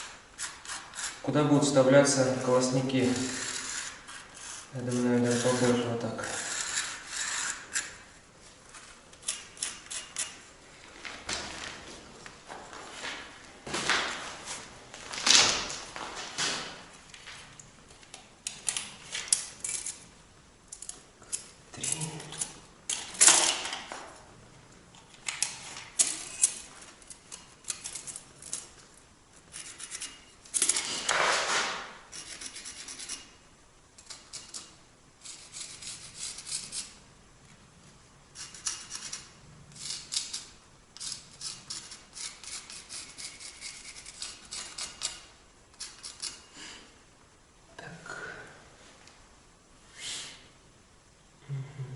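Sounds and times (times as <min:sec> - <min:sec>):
hand tool scraping brick: 0:02.7 - 0:08.0.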